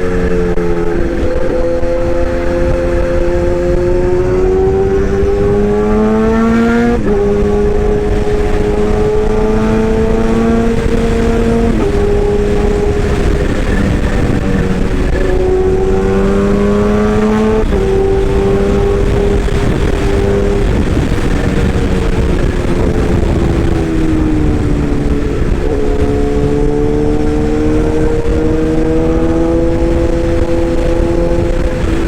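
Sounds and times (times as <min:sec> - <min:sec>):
rough mechanical rumble: 0:07.1 - 0:27.4.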